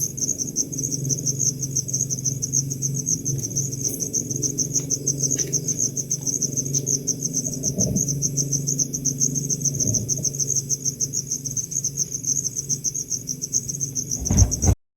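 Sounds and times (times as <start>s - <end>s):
cricket chirping: 0.0s - 14.7s
steady low hum: 14.1s - 14.8s.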